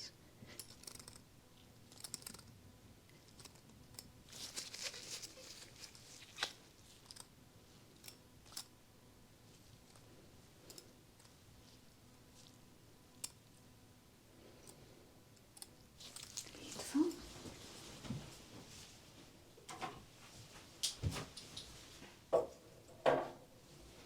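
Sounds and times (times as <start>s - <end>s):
rustling: 4.3s - 7.2s
gloved hands handling: 4.3s - 7.3s.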